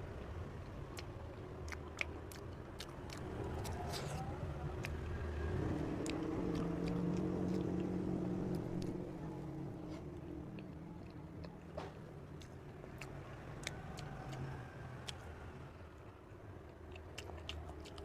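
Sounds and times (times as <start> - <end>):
person chewing cake: 0.2 - 9.1, 9.8 - 15.4, 16.6 - 18.0
vehicle engine running past: 2.9 - 16.0.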